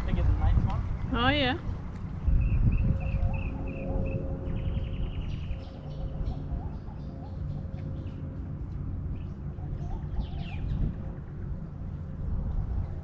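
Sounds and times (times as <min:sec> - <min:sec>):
low steady rumble: 0:00.0 - 0:13.0
low warbling bird notes: 0:01.0 - 0:13.0
birds chirping and trilling: 0:02.3 - 0:11.5.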